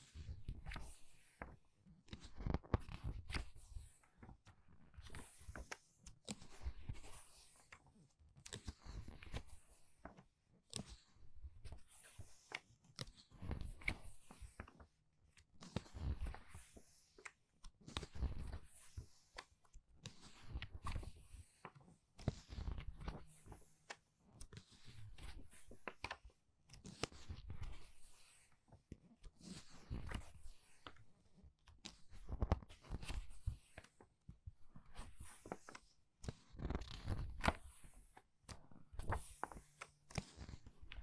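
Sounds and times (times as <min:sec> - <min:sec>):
book pages turning: 0:22.3 - 0:26.2, 0:36.6 - 0:38.2, 0:39.0 - 0:40.7.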